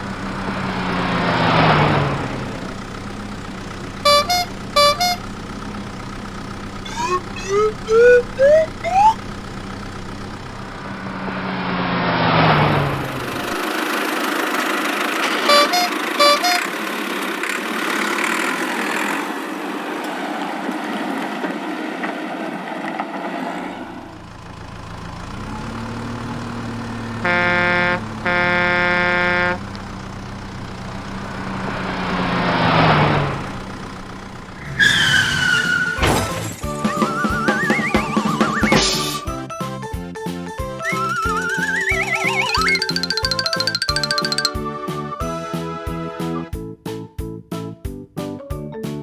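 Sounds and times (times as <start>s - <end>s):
cartoon engine noise: 0.0s - 14.3s, 15.3s - 16.8s, 25.2s - 39.4s, 40.6s - 45.3s
horn blasts: 3.9s - 5.5s, 6.8s - 9.2s, 15.3s - 16.8s, 27.0s - 30.0s
bouncy music: 6.8s - 9.2s, 36.6s - 47.0s
vehicle passing by: 10.9s - 15.2s, 22.2s - 35.9s.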